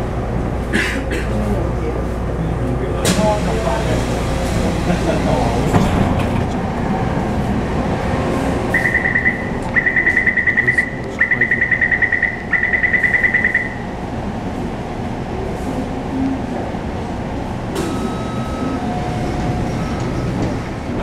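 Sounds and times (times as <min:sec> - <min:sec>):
train interior rumble: 0:00.0 - 0:21.0
rapid high warning beeps: 0:08.7 - 0:13.9, 0:17.8 - 0:20.7.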